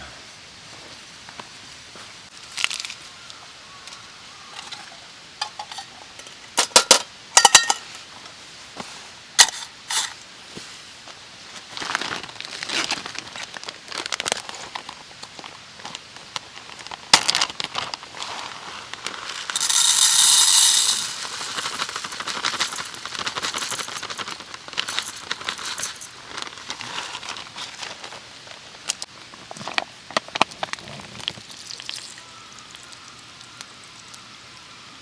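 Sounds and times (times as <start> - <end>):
campfire crackling: 14.1 - 34.2.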